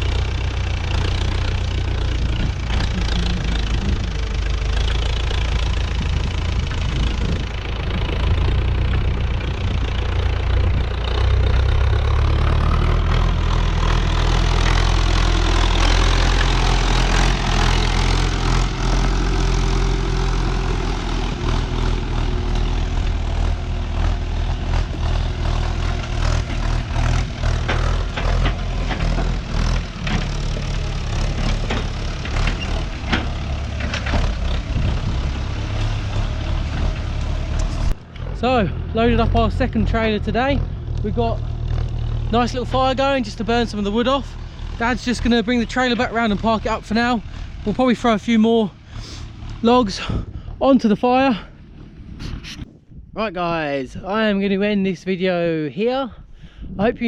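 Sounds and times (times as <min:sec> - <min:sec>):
tractor engine running: 0:00.0 - 0:57.0
sharp knocks and clatter: 0:21.3 - 0:38.3.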